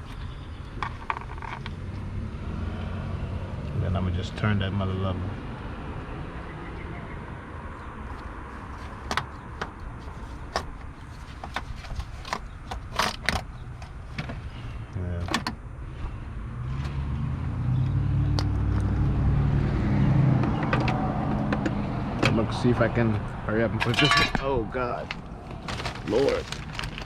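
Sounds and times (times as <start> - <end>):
hand tools clinking on metal: 23.8 - 24.6.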